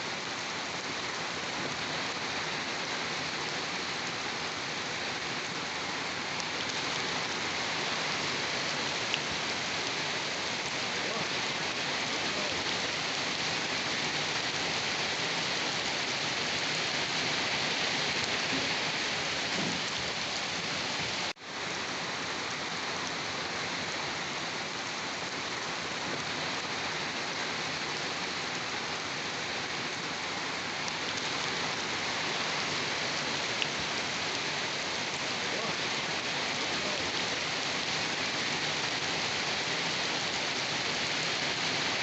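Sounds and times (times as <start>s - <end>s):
steady rain hissing: 0.0s - 42.0s.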